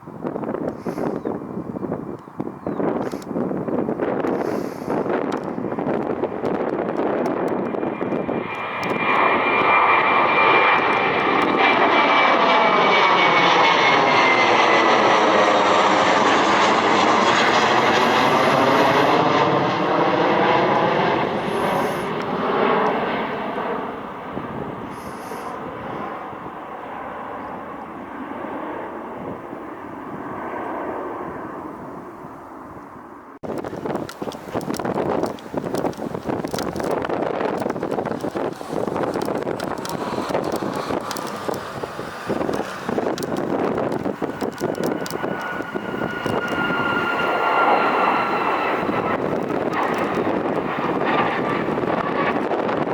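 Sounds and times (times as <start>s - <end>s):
airliner engine rush: 0.0s - 52.9s
thin whine dropping in pitch: 7.6s - 26.1s, 36.2s - 52.5s.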